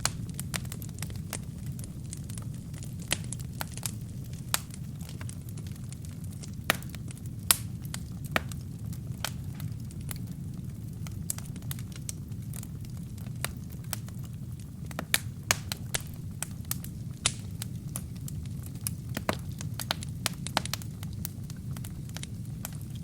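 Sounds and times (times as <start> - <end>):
burning wood crackling and popping: 0.0 - 23.0
low rumble of flame: 0.0 - 23.0.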